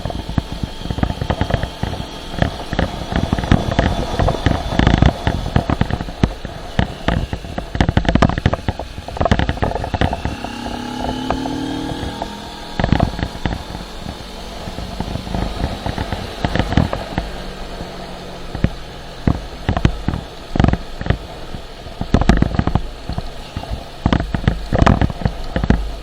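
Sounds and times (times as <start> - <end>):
motorcycle engine: 0.0 - 26.0
wind buffeting microphone: 0.0 - 26.0.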